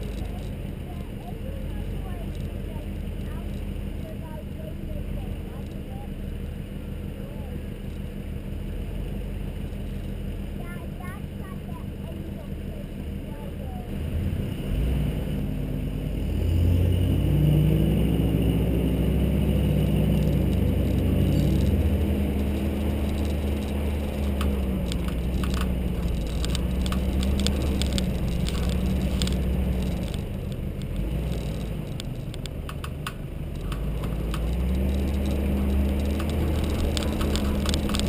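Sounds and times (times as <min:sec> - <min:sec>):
car engine running: 0:00.0 - 0:38.0
vehicle rattles and clicks: 0:00.0 - 0:38.0.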